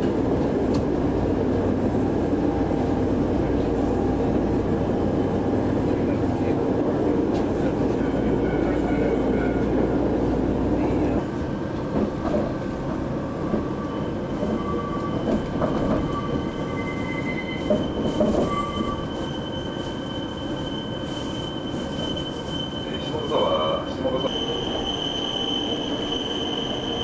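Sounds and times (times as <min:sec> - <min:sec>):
train wheels rumbling on rail: 0:00.0 - 0:27.0
high wheel squeal: 0:13.6 - 0:27.0.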